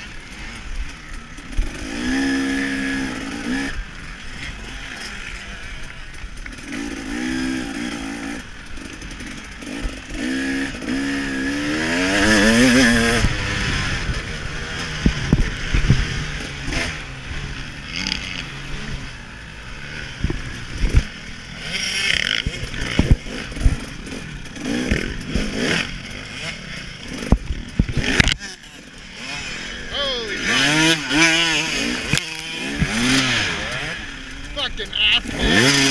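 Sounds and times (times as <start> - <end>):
dirt bike engine revving: 0.0 - 35.9
wind noise: 12.9 - 16.8.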